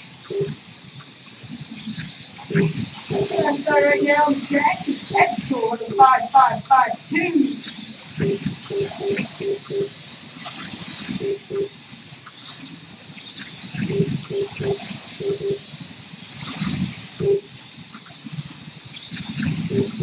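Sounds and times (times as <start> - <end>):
slot car motors whining: 2.6 - 10.2.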